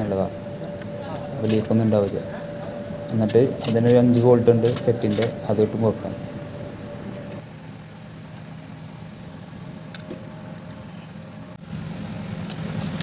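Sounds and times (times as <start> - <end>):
engine idling: 0.0 - 7.4.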